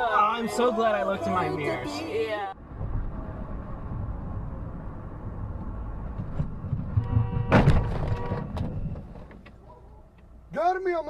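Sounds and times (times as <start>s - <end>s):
vehicle road noise rumble: 0.0s - 11.0s
loud crash-like impact: 6.7s - 8.5s.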